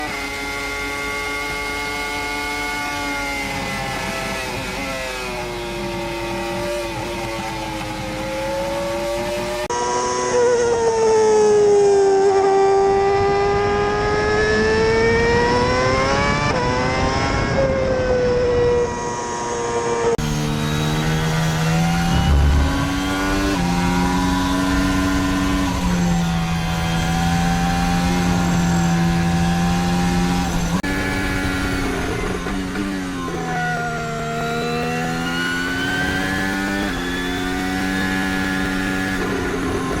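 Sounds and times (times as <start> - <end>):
racing car engines at high revs: 0.0 - 40.0
racing car changing gears: 20.0 - 40.0.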